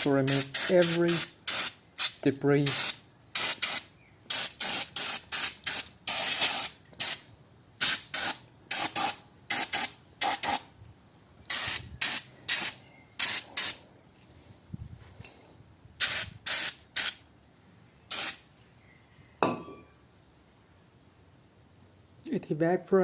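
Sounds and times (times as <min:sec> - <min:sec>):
aerosol spray hissing bursts: 0:00.0 - 0:07.2, 0:07.8 - 0:10.6, 0:11.5 - 0:13.8, 0:16.0 - 0:17.2, 0:18.1 - 0:18.4.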